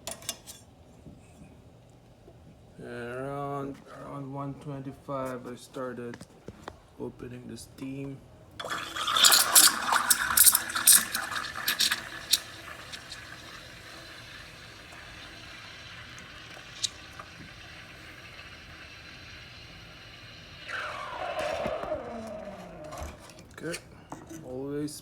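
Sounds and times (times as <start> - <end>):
steam wand hissing into milk: 8.6 - 23.3.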